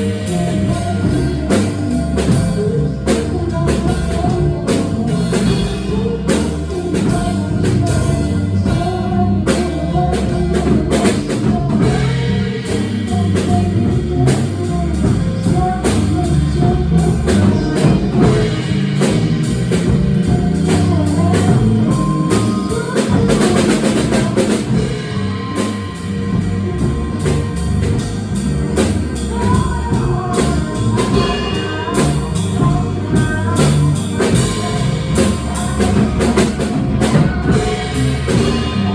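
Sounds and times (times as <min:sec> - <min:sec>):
bass: 0:00.0 - 0:38.9
drum kit: 0:00.0 - 0:38.9
jazz band playing live: 0:00.0 - 0:38.9.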